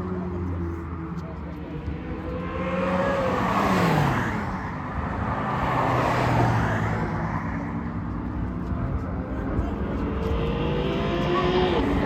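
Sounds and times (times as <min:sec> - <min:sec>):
sports cars driving past: 0:00.0 - 0:12.0.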